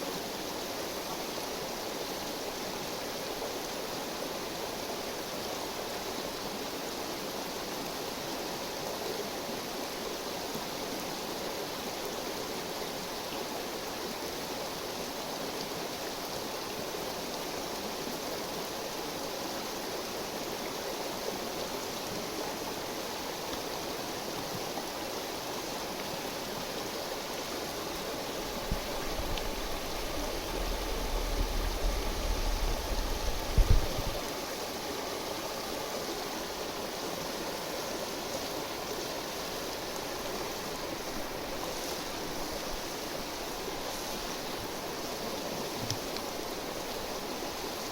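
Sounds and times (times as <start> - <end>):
river flowing: 0.0 - 47.9
low rumble: 29.0 - 34.2.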